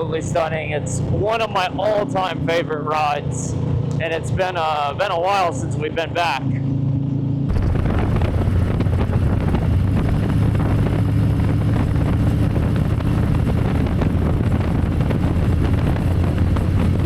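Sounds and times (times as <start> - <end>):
motorcycle engine drone: 0.0 - 17.0
wind noise on microphone: 7.4 - 17.0.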